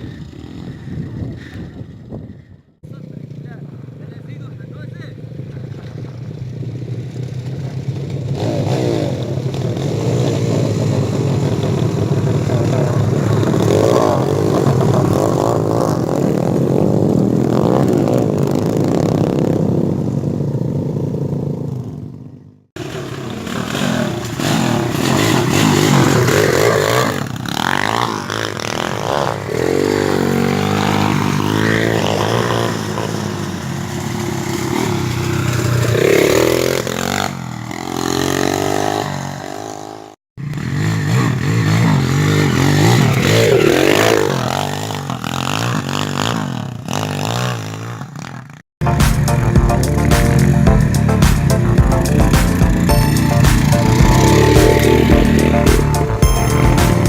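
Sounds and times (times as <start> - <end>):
motorcycle engine revving: 0.0 - 57.0
clatter: 5.2 - 37.8.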